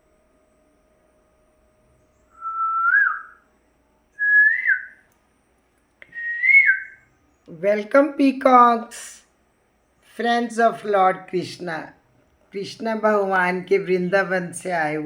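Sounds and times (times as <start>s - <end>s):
person whistling notes: 2.4s - 3.4s, 4.2s - 4.9s, 6.1s - 7.0s.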